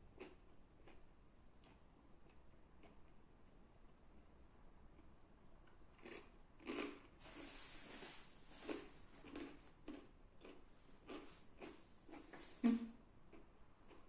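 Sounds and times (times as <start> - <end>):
chewing crunchy food: 0.1 - 3.3, 4.9 - 14.0.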